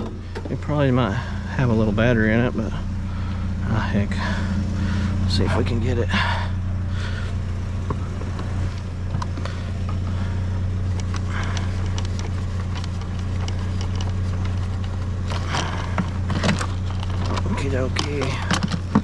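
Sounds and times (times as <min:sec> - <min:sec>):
vehicle engine idling: 0:00.0 - 0:19.0
small objects clicking and scraping: 0:10.9 - 0:19.0.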